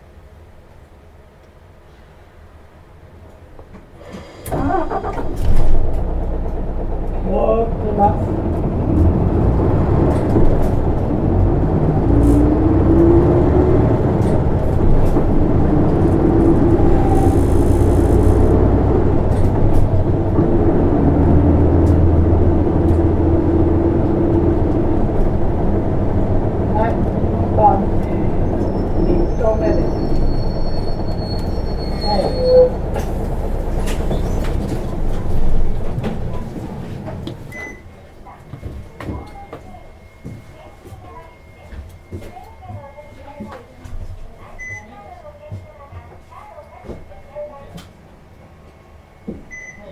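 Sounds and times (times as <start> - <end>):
bus diesel engine accelerating: 3.3 - 38.3
brake squeal: 4.0 - 6.2, 8.0 - 22.0, 24.4 - 36.5.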